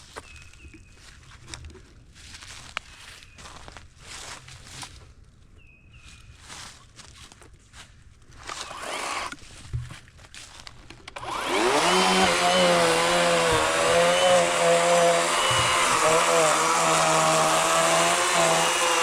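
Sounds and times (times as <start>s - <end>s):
electric chainsaw running: 8.5s - 9.4s, 11.1s - 19.0s.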